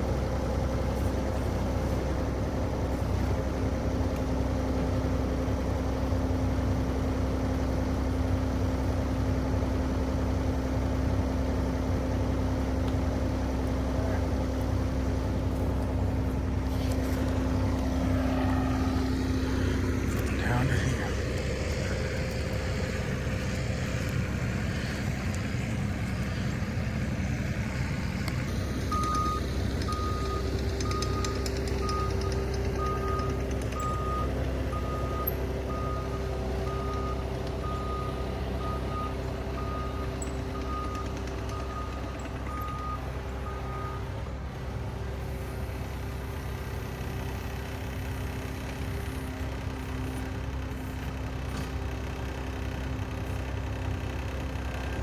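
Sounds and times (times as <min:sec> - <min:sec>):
loader engine running: 0:00.0 - 0:55.0
backup alarm beeping: 0:28.9 - 0:44.1.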